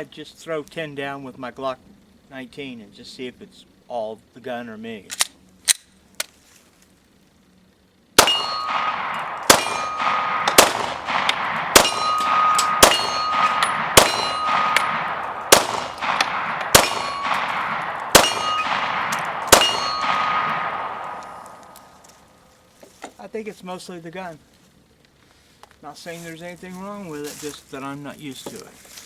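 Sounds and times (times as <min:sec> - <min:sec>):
pistol shots: 0:08.2 - 0:22.0
ringing metallic clang: 0:08.2 - 0:22.2.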